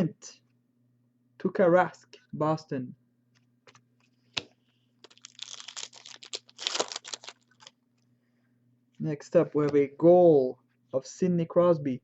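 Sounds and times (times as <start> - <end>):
foil wrapper crinkling: 5.0 - 7.7.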